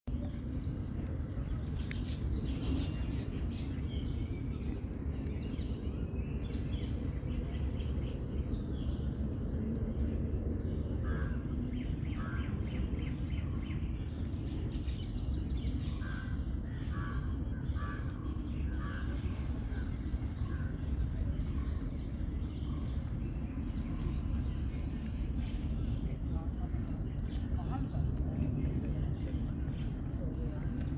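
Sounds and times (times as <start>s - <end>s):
low outdoor rumble: 0.1s - 30.9s
birds calling: 11.0s - 30.9s.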